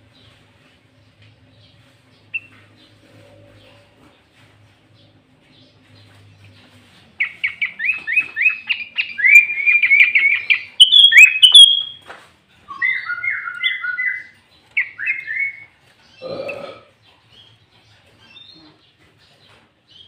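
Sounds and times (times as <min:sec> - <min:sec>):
bulbul singing chirps: 0:07.2 - 0:12.0, 0:12.7 - 0:16.2
harsh lower bird call: 0:07.2 - 0:12.0.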